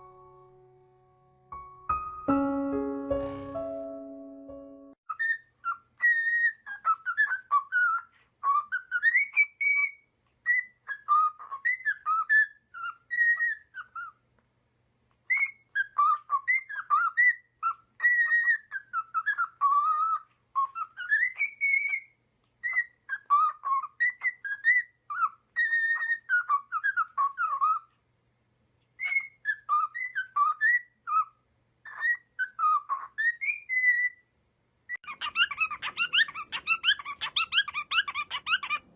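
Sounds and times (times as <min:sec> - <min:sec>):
bird whistling: 0:31.9 - 0:34.2, 0:35.0 - 0:38.9.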